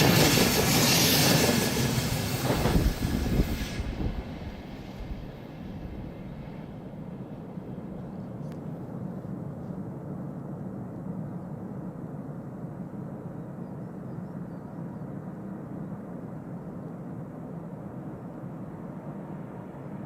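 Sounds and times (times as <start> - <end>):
train rumbling on track: 0.0 - 10.9.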